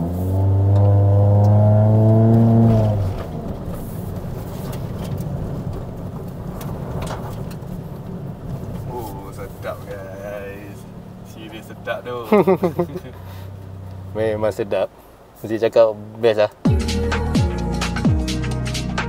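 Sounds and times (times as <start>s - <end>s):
car engine revving: 0.0s - 14.7s
road and tyre noise: 0.0s - 18.1s.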